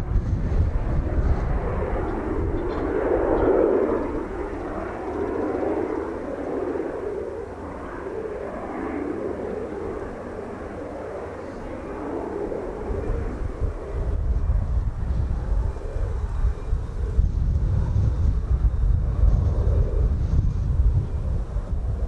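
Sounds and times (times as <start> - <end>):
jet engines rushing past: 0.0 - 22.0
wind buffeting microphone: 0.0 - 22.0.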